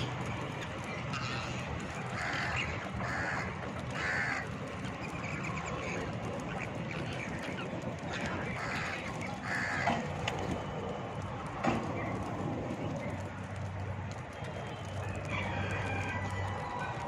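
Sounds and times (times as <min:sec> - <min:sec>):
steady noisy background: 0:00.0 - 0:17.0
parrots calling: 0:00.8 - 0:09.9.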